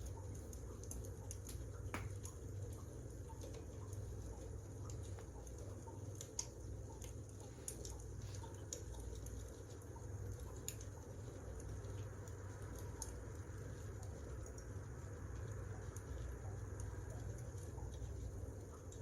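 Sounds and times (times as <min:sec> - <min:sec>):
wood fire popping and snapping: 0:00.2 - 0:13.5.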